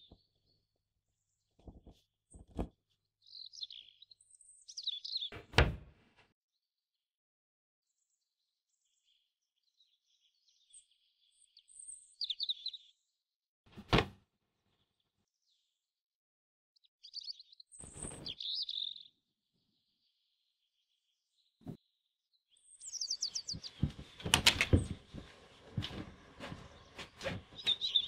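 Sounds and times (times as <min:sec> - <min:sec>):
small birds chirping: 0:00.0 - 0:05.6, 0:07.9 - 0:13.3, 0:16.8 - 0:28.0.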